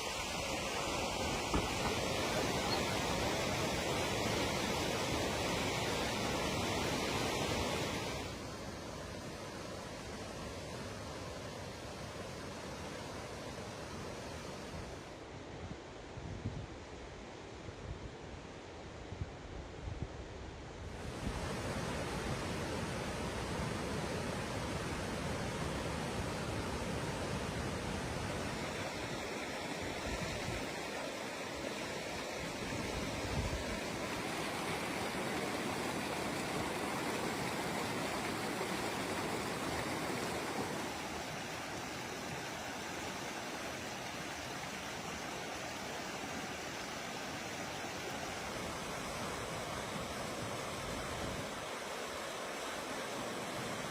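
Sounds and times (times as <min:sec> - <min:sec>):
rushing floodwater: 0:00.0 - 0:15.3, 0:20.9 - 0:53.9.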